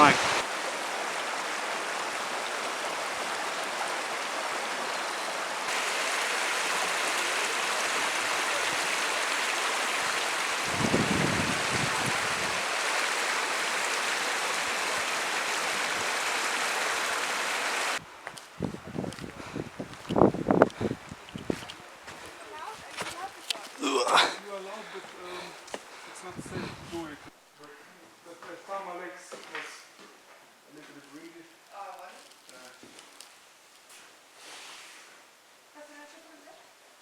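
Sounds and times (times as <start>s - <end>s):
mountain stream rushing: 0.0s - 18.0s.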